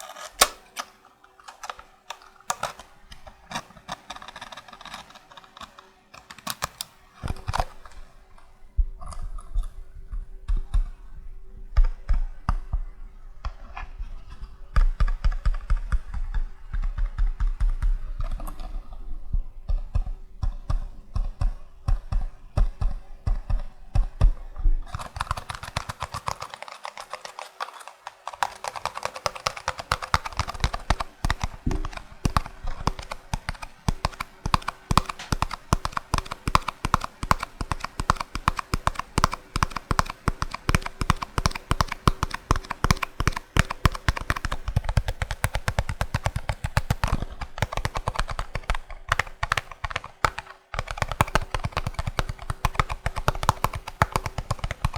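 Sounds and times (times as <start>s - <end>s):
fingertips tapping cardboard box: 1.5s - 7.8s, 25.0s - 54.9s.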